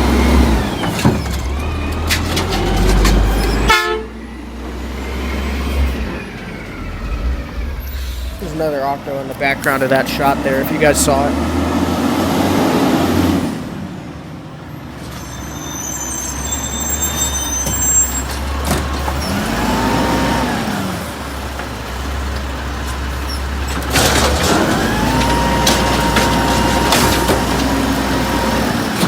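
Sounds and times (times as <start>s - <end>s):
garbage truck engine humming: 0.0s - 29.0s
rising whine: 4.9s - 8.7s.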